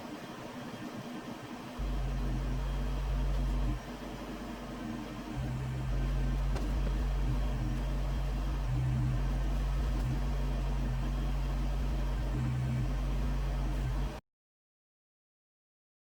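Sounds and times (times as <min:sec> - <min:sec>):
tractor diesel engine running: 0:01.8 - 0:14.2.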